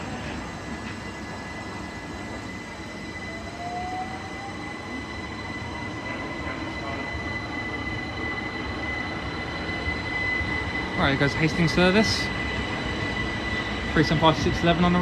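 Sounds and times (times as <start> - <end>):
train high whine: 0.0 - 15.0
train rumble: 0.0 - 15.0.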